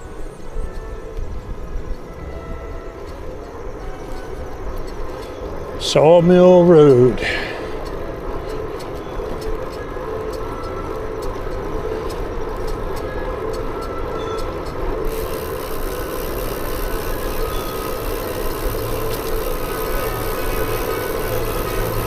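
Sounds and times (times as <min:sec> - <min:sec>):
wind buffeting microphone: 0:00.0 - 0:05.8
bicycle road noise: 0:00.0 - 0:22.0.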